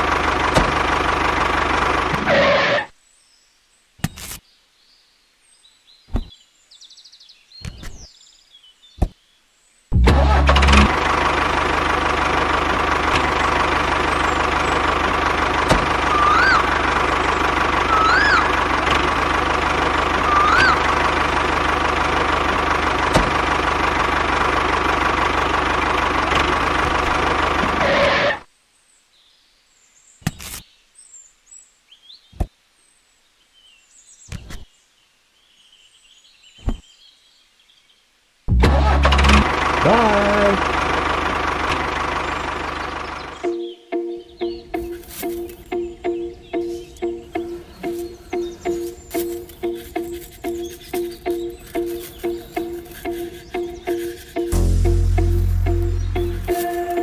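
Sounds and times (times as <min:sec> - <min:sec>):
motor running: 0:10.0 - 0:28.3, 0:48.8 - 0:57.0.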